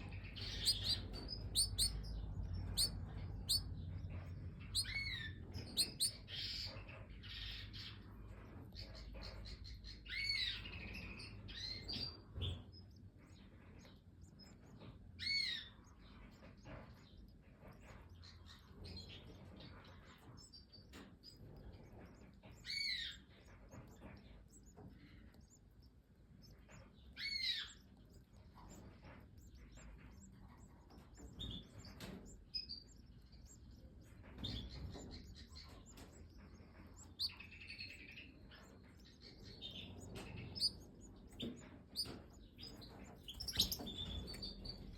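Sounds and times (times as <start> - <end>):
finches chirping: 0.0 - 44.9.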